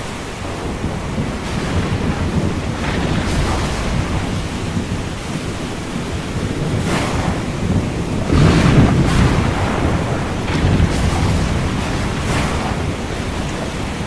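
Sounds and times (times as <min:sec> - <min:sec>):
low storm rumble: 0:00.0 - 0:14.0
ocean waves breaking: 0:00.0 - 0:14.0.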